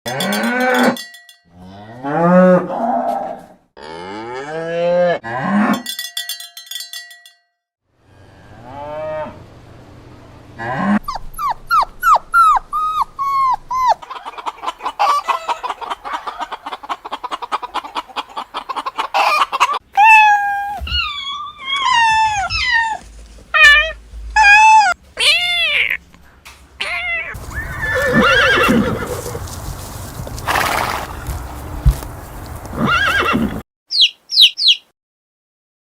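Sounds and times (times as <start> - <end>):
cattle mooing: 0.1 - 5.8, 8.5 - 9.4, 27.4 - 31.7
high falling animal calls: 18.9 - 23.0, 26.8 - 34.9.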